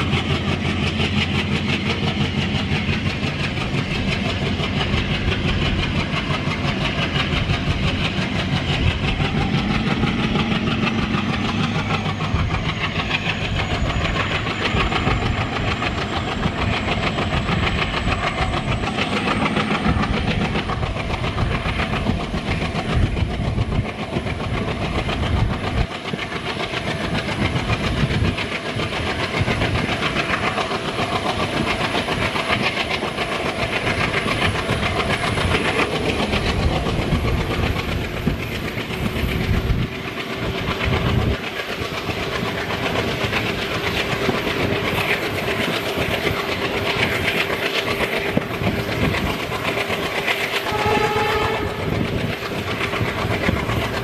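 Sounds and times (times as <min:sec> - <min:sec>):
train wheels clattering over rails: 0:00.0 - 0:54.0.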